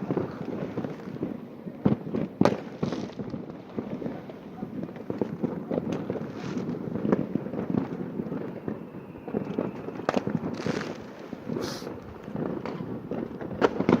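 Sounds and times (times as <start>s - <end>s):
fireworks bangs: 0.0s - 14.0s
fireworks crackling pops: 0.0s - 14.0s
fireworks hissing bursts: 8.9s - 14.0s.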